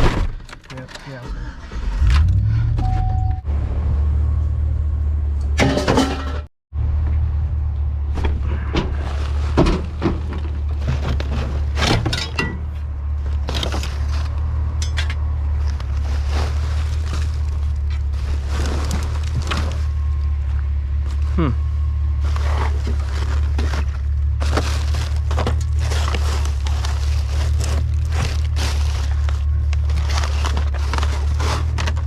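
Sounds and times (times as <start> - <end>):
truck engine running: 1.6 - 32.0
knocks and rattles: 8.1 - 15.3.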